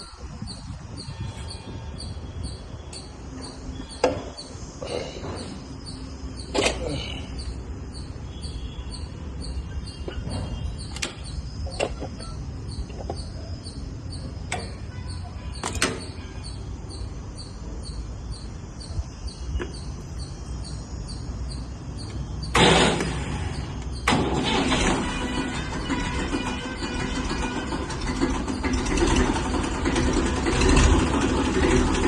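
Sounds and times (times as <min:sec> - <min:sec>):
faint high chirping: 0:00.0 - 0:22.6
sharp clicks and knocks: 0:10.0 - 0:13.4, 0:14.4 - 0:14.8, 0:15.6 - 0:16.2.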